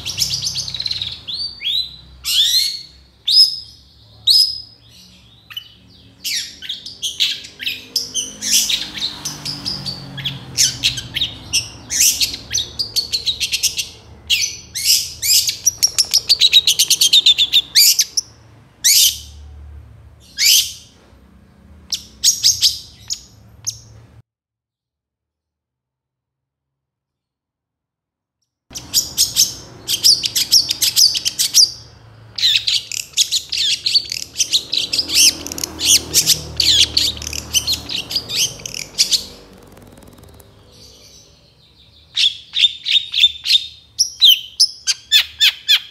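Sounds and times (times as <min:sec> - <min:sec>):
shrike singing: 0:28.7 - 0:43.4.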